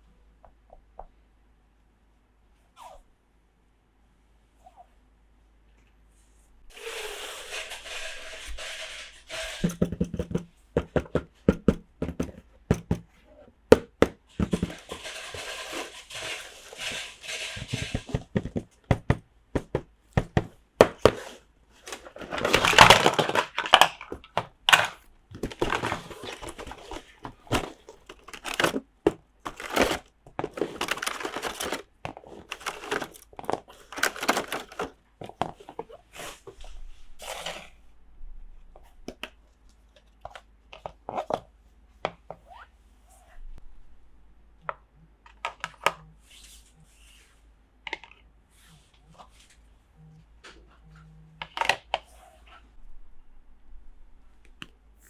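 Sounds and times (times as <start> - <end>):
packaging rustling: 13.8 - 35.4
packaging crinkling: 14.0 - 18.2, 20.2 - 35.0
plastic toy pieces clicking: 27.5 - 28.8, 29.5 - 31.9, 32.5 - 34.9.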